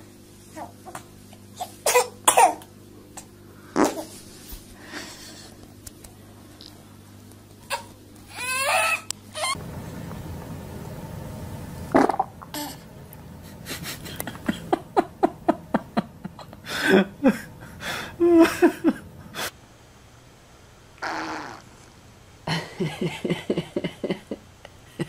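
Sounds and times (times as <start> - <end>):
baby farting: 3.8 - 4.1, 11.9 - 12.8, 21.0 - 21.7.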